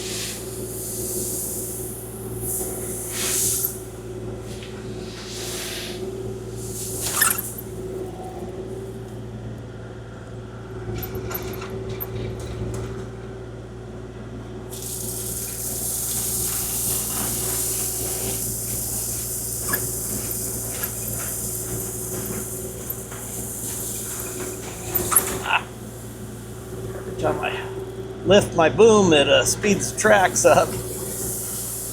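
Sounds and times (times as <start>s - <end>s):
strong steady hiss: 0.0s - 8.1s, 14.7s - 31.9s
excavator diesel engine running: 0.0s - 31.9s.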